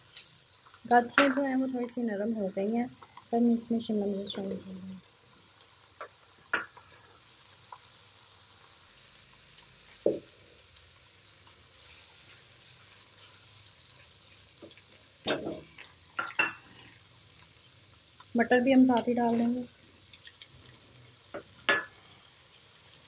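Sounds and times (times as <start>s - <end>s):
faint sizzle of frying: 0.0s - 23.0s
spatula tapping and scraping wok: 21.3s - 22.0s.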